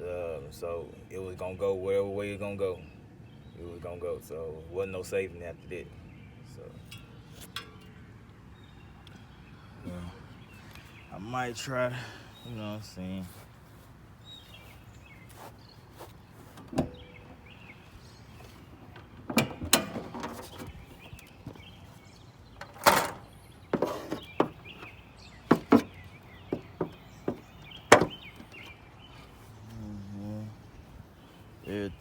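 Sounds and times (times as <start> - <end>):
birds chirping faintly: 0.0 - 32.0
car door knocks and clunks: 16.6 - 17.5, 18.7 - 21.8, 22.6 - 28.8.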